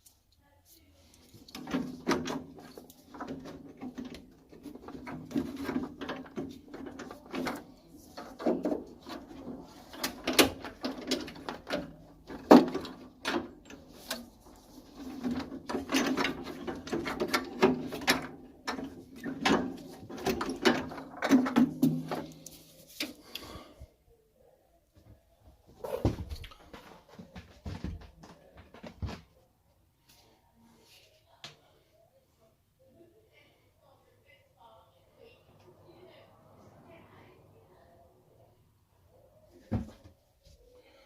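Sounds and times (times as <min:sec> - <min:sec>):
tools clicking and rattling: 0:01.1 - 0:23.2.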